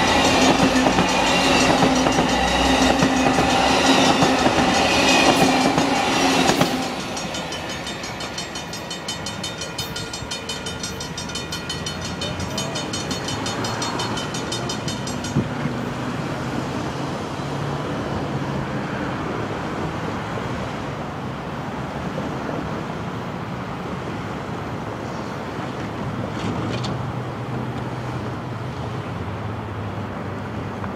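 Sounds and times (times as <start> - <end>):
train rolling by clicking: 0.0 - 19.9, 25.0 - 29.2.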